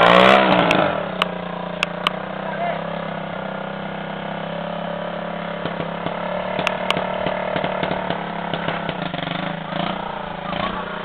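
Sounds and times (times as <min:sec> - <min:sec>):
dirt bike engine running: 0:00.0 - 0:11.0
sharp clicks and ticks: 0:00.6 - 0:02.2, 0:05.6 - 0:09.9.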